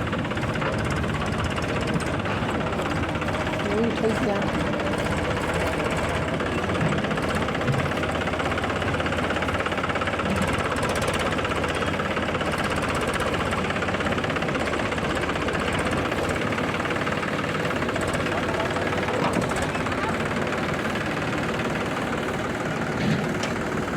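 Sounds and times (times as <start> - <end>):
diesel engine knocking: 0.0 - 23.9.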